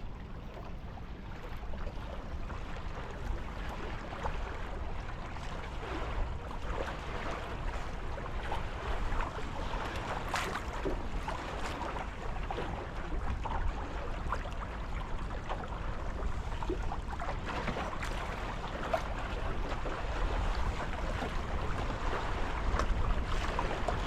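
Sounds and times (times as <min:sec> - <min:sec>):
water splashing along boat hulls: 0:00.0 - 0:24.0
wind rumble on microphone: 0:00.0 - 0:24.0.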